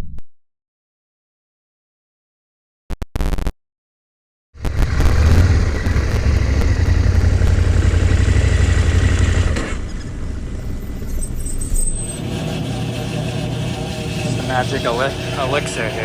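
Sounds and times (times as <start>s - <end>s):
vehicle engine running: 4.6s - 16.0s.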